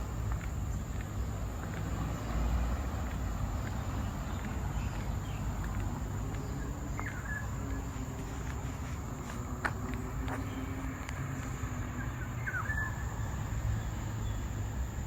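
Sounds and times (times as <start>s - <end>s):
bird chirp: 3.0s - 15.0s.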